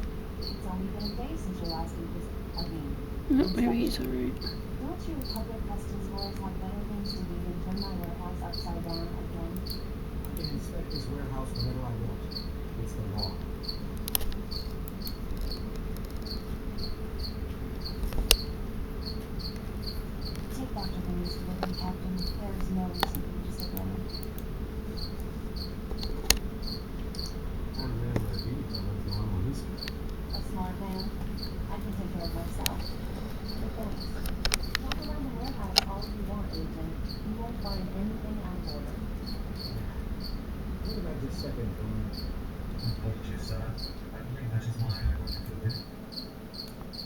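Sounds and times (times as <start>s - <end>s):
low steady hum: 0.0s - 46.5s
cricket chirping: 0.0s - 47.0s
sharp clicks: 32.6s - 36.1s.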